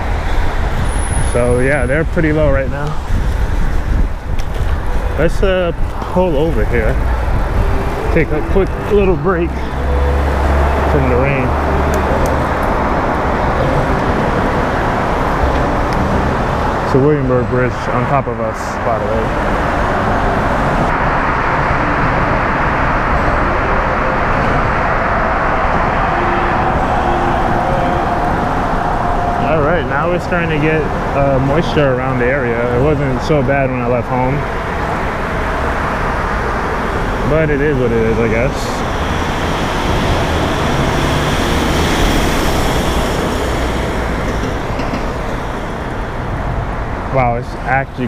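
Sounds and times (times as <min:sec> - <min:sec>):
wind buffeting microphone: 0:00.0 - 0:16.9
passing road traffic: 0:00.0 - 0:48.0.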